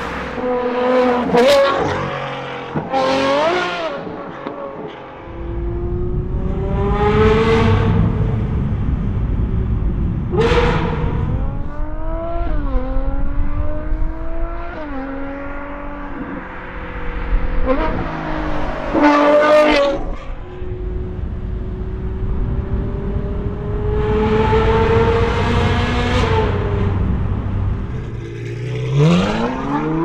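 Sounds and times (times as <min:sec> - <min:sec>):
sports car accelerating: 0:00.0 - 0:30.0.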